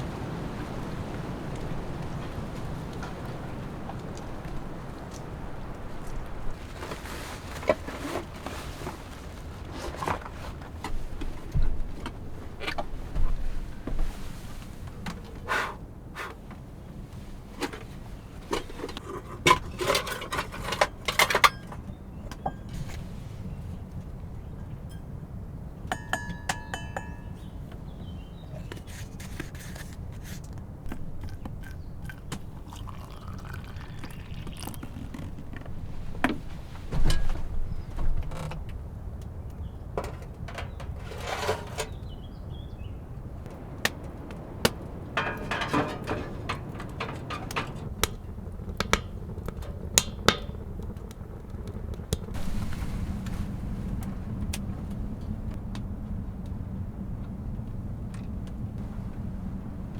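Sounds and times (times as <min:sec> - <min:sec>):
low wind rumble: 0:00.0 - 0:59.9
objects being handled: 0:28.6 - 0:37.4.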